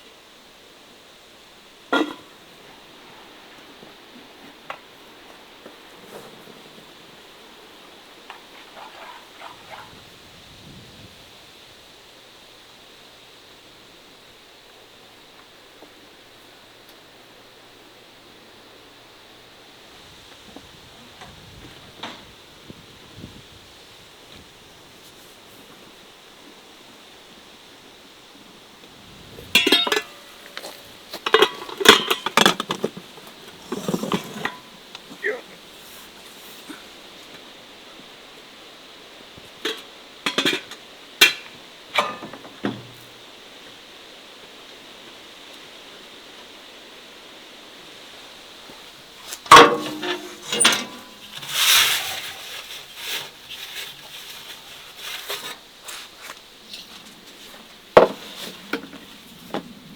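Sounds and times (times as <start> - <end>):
kitchenware clanking: 29.5 - 34.9, 49.5 - 51.6
kitchenware clinking: 29.6 - 32.9, 49.5 - 51.4
kitchenware scraping and knocking: 29.6 - 34.7, 49.5 - 51.6.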